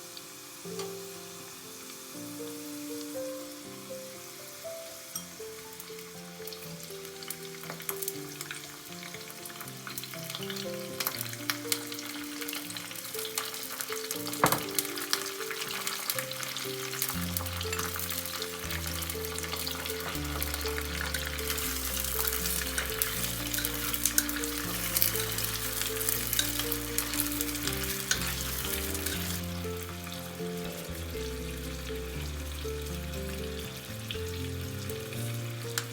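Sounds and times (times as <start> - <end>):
oil sizzling and crackling in a pot: 0.0 - 35.9
background music with bass line: 17.2 - 35.9.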